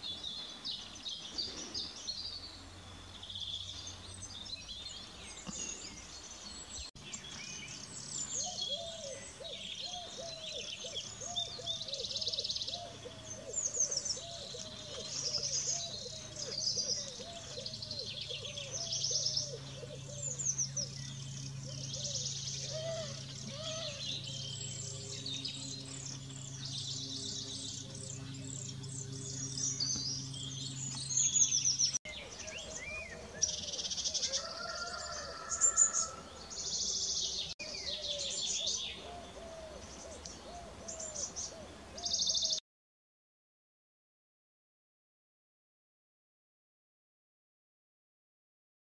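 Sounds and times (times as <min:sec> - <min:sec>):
low steady hum: 0:00.0 - 0:34.3
songbirds chirping and trilling: 0:00.0 - 0:42.6.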